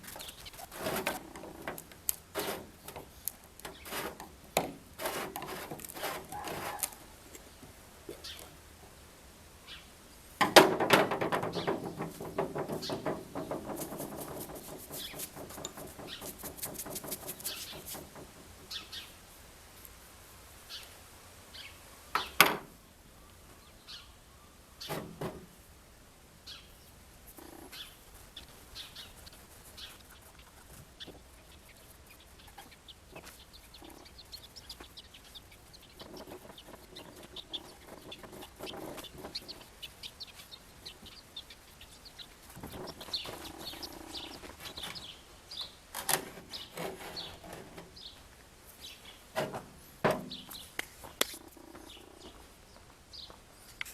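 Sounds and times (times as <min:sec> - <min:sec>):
small birds chirping: 0:00.0 - 0:04.7, 0:05.5 - 0:08.6, 0:09.6 - 0:10.4, 0:11.4 - 0:19.3, 0:20.6 - 0:25.1, 0:26.4 - 0:49.3, 0:50.2 - 0:53.9
chickens calling: 0:00.0 - 0:08.6, 0:10.7 - 0:19.2, 0:26.5 - 0:49.3, 0:50.2 - 0:53.6
sharp knocks: 0:10.4 - 0:18.3.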